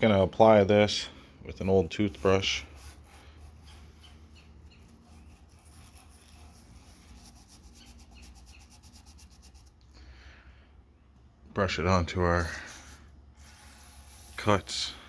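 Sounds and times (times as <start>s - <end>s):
toothbrush bristles scrubbing wood: 1.9s - 9.7s, 12.4s - 15.0s.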